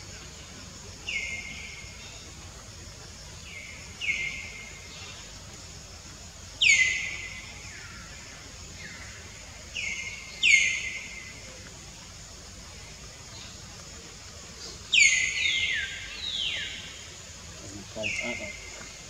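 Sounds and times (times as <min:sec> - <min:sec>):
outdoor background noise: 0:00.0 - 0:19.0
bird calling: 0:14.6 - 0:17.0, 0:17.7 - 0:19.0.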